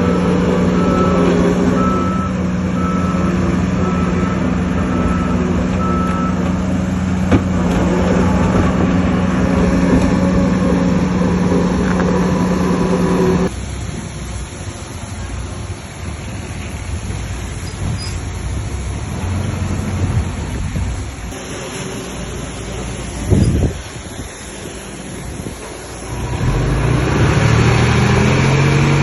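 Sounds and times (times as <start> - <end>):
reversing alarm beeping: 0.0 - 6.6
heavy diesel machinery running: 0.0 - 29.0.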